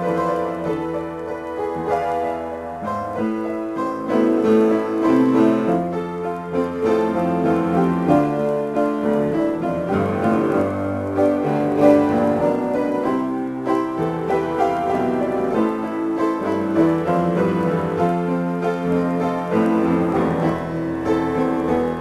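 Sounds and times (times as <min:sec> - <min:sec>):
solo piano: 0:00.0 - 0:22.0.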